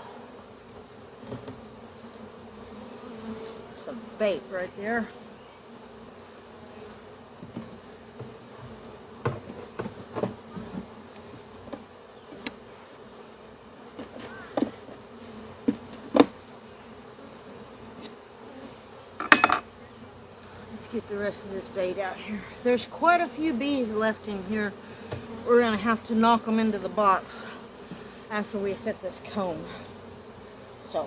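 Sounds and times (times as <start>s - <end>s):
bee swarm buzzing: 0.0s - 31.0s
handling knocks and clicks: 19.2s - 19.6s.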